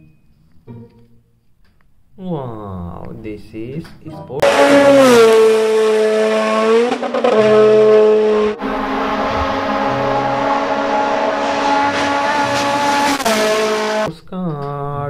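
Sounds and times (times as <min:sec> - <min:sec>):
sports car engine revving high: 0:04.4 - 0:14.1.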